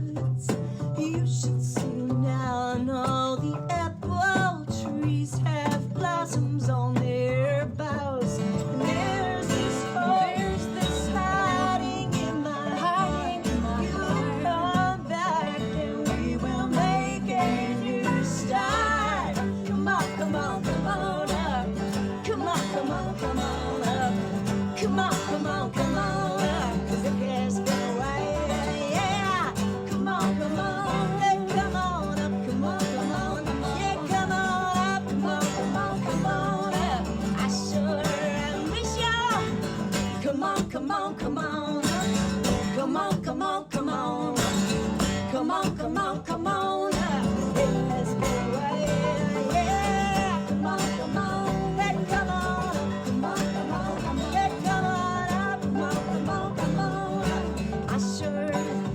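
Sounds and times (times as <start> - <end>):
acoustic guitar: 0.0 - 58.9
person singing: 0.0 - 58.9.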